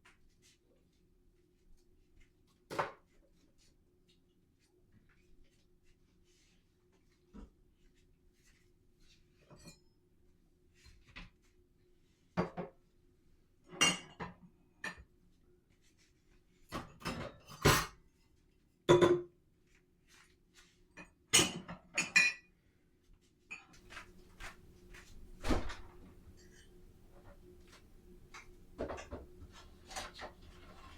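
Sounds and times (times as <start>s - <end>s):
crockery and utensils clinking: 13.8s - 15.0s.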